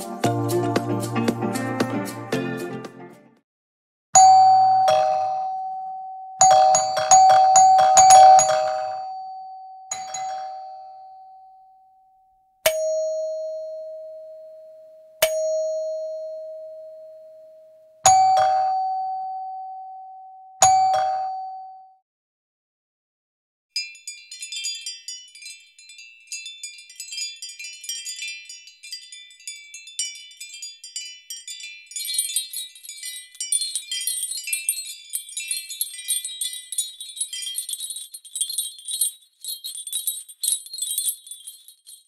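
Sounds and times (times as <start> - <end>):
two-tone doorbell chime: 4.2 - 12.0, 12.7 - 22.0.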